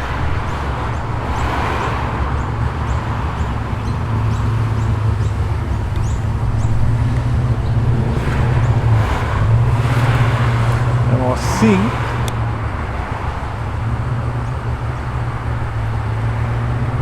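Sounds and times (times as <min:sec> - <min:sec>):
car engine rumbling at low revs: 0:00.0 - 0:17.0
small birds chirping: 0:02.2 - 0:08.9.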